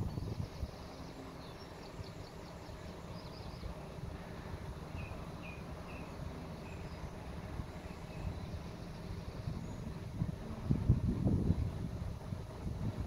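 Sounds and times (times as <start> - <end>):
small birds chirping: 0.0 - 10.2
wind rumbling on microphone: 0.0 - 13.0.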